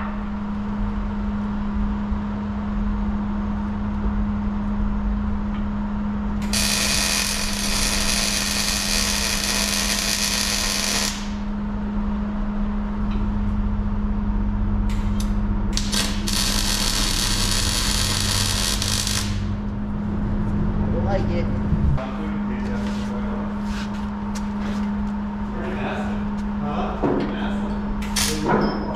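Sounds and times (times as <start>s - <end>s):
steady low hum: 0.0s - 28.9s
welding arc crackling: 6.4s - 11.5s, 15.8s - 19.6s.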